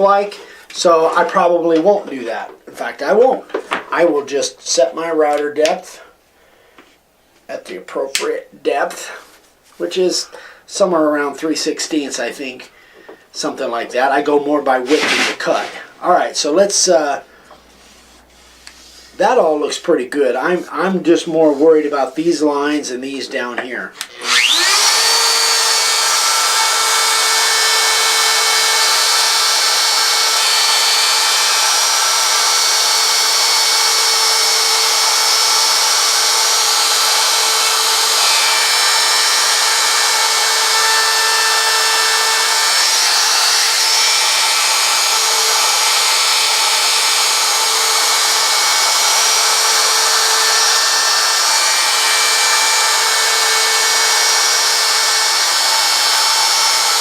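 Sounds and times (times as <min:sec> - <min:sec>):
wood router whining: 0:24.0 - 0:57.0.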